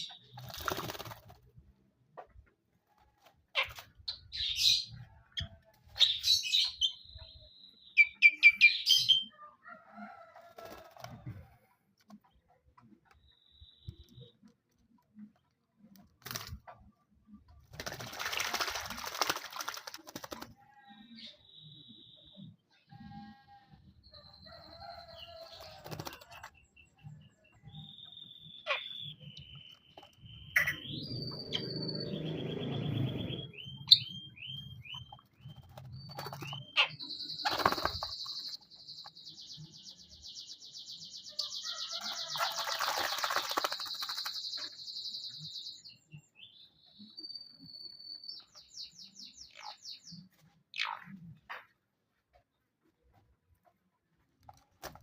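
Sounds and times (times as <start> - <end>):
wings flapping in water: 0.2 - 1.5, 17.6 - 20.6, 37.4 - 38.5, 42.0 - 44.7.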